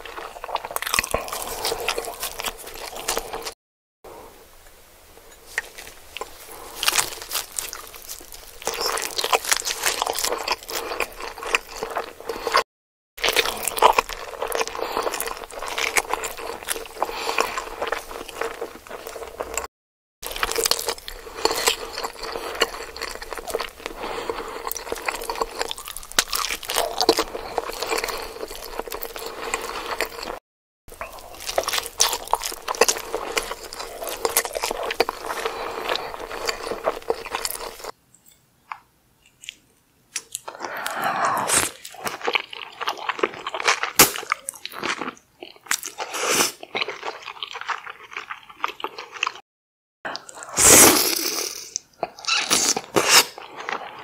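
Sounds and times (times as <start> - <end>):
biting and chewing fish: 0.0 - 3.6, 5.6 - 12.6, 13.2 - 38.0.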